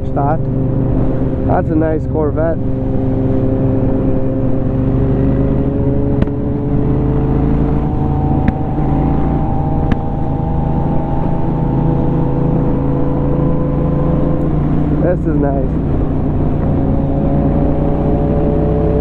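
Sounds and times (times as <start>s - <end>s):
motorcycle engine running: 0.0s - 19.0s
wind rumble: 0.0s - 19.0s.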